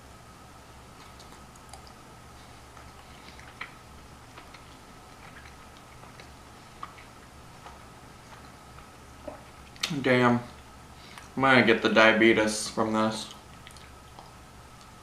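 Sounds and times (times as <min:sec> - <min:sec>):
steady electrical hum: 0:00.0 - 0:15.0
quiet chewing mouth clicks: 0:01.0 - 0:02.0, 0:02.7 - 0:11.4, 0:13.3 - 0:15.0.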